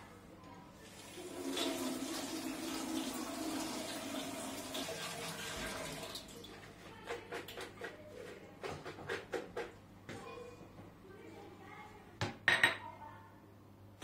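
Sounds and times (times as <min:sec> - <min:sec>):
water running from a tap: 0:00.8 - 0:06.7.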